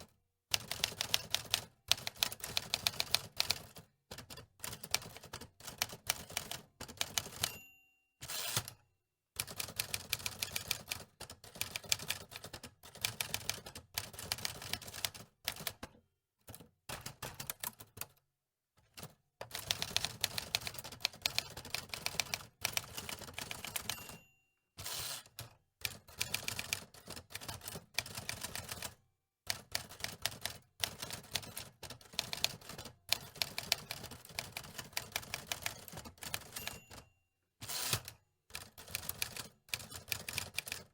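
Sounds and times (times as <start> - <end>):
typewriter margin bell ding: 7.2 - 8.8, 23.6 - 25.2, 36.3 - 38.1.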